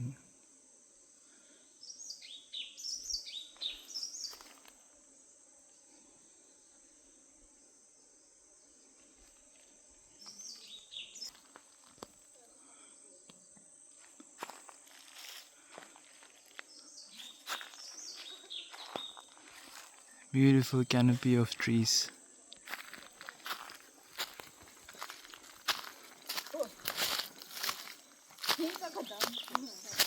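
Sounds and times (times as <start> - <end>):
high insect drone: 0.0 - 30.0
small birds chirping: 1.8 - 4.6, 10.1 - 11.5, 16.4 - 21.8, 22.4 - 30.0.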